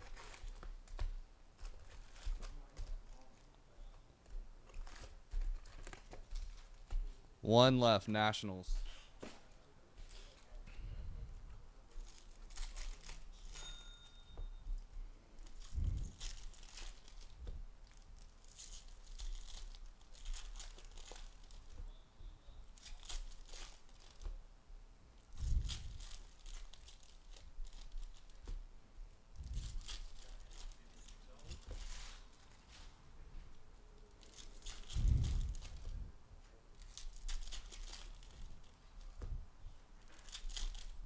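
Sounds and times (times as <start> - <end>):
foil wrappers ripping and crinkling: 0.0 - 0.7, 11.9 - 13.6, 15.4 - 21.8, 22.6 - 24.4, 25.3 - 28.6, 29.4 - 32.6, 34.0 - 35.9, 36.8 - 39.2, 40.0 - 41.0
cards rustling: 0.0 - 3.5, 4.3 - 7.0, 11.9 - 13.7, 15.4 - 21.8, 22.6 - 24.4, 25.3 - 28.6, 29.4 - 33.0, 34.0 - 36.0, 36.8 - 39.3, 40.0 - 41.0.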